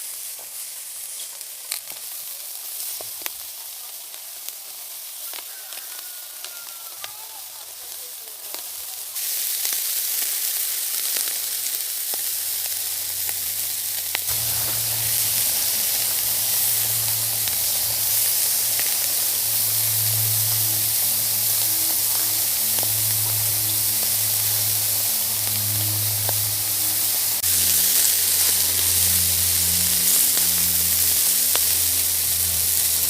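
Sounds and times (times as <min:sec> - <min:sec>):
food sizzling in oil: 0:00.0 - 0:33.0
low hum: 0:12.7 - 0:33.0.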